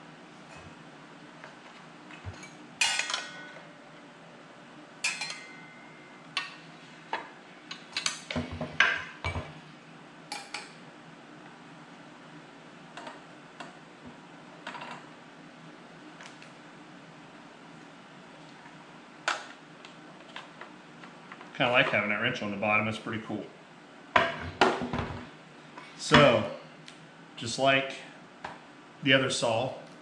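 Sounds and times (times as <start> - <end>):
low steady hum: 0.0 - 30.0
metal tools clinking: 2.4 - 3.6, 5.0 - 5.8.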